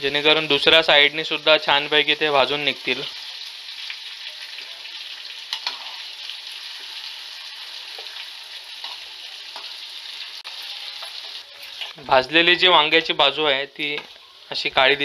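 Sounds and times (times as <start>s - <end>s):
vegetables sizzling in oil: 0.0s - 15.0s
steel spoon scraping a pan: 5.5s - 12.0s.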